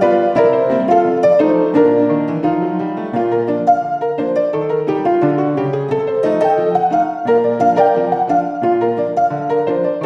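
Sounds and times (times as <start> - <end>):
upbeat keyboard tune: 0.0 - 10.0.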